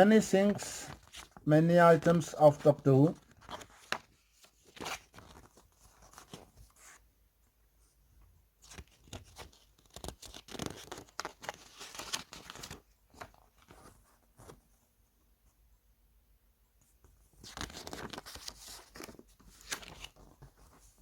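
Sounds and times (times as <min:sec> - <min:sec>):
paper booklet rustling: 0:00.0 - 0:07.0, 0:08.6 - 0:14.6, 0:17.3 - 0:21.0.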